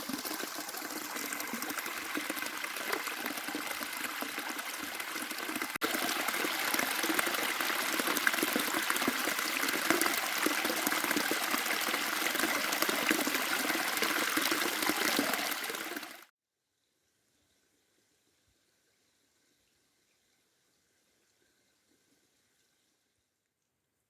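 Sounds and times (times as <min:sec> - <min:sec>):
rushing splashing water: 0:00.0 - 0:16.3.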